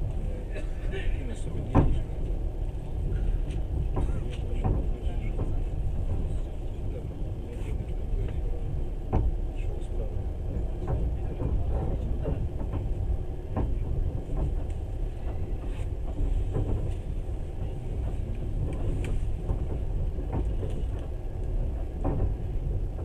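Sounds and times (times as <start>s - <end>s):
low rumble of wheels on rails: 0.0s - 23.0s
knocks and rattles: 16.0s - 23.0s.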